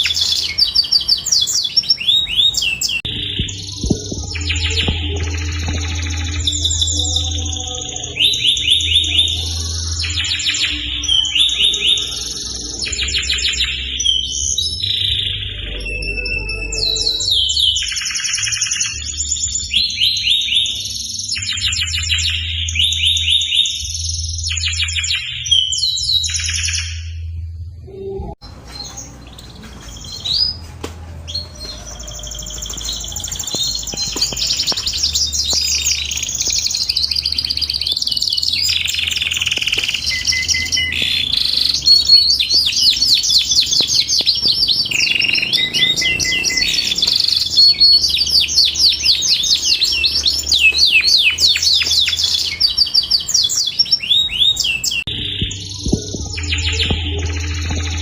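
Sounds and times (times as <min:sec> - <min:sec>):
canary singing trills: 0:00.0 - 0:27.3, 0:31.2 - 0:58.0.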